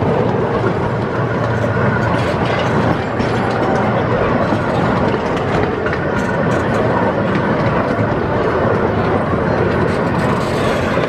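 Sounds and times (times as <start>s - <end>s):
small train wheels rumbling: 0.0s - 11.0s.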